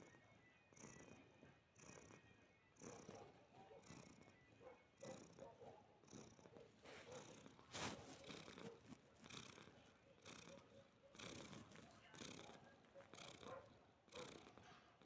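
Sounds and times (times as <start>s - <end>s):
cat purring: 0.8s - 14.6s.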